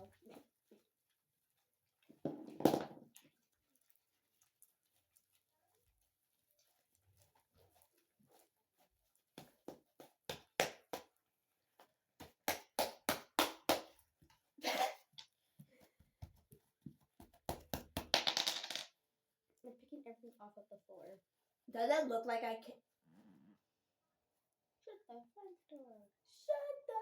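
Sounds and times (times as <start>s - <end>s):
slime squelch: 3.1s - 12.0s.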